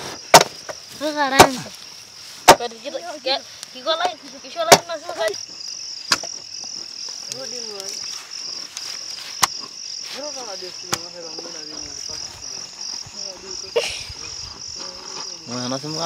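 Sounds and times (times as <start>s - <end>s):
insects chirring: 0.0s - 16.0s
sharp knocks: 0.3s - 0.8s.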